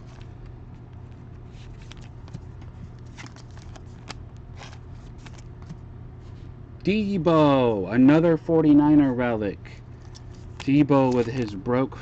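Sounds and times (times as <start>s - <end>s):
steady low hum: 0.0s - 12.0s
packaging rustling: 1.4s - 5.7s.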